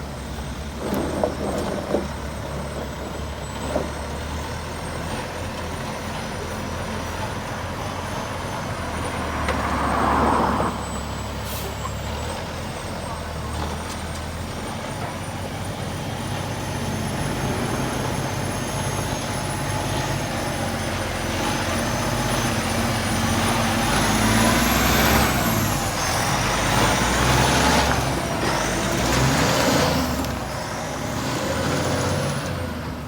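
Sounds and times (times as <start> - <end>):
heavy truck engine running: 0.0 - 33.0.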